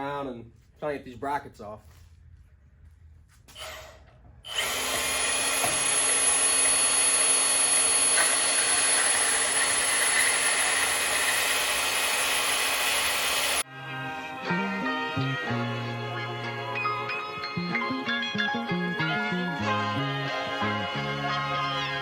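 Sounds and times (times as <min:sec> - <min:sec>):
power tool cutting steel: 0:04.5 - 0:13.7.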